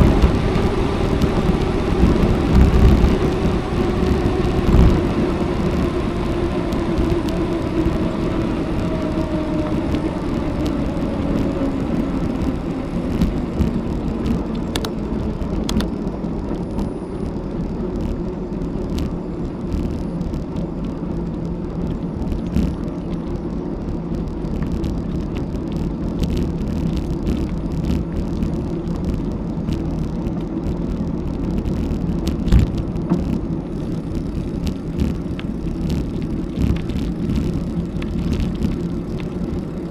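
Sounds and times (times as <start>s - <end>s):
bicycle tyre noise: 0.0s - 39.9s
wind rumble on microphone: 0.0s - 39.9s.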